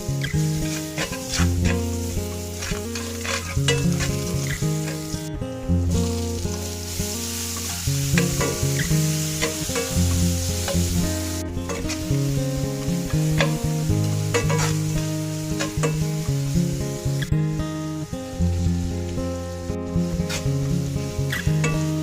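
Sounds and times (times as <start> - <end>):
food sizzling in a frying pan: 0.0 - 22.0
utensil clicking against pan: 0.7 - 2.0, 2.6 - 5.1, 7.5 - 11.0, 13.0 - 14.9, 15.5 - 16.2.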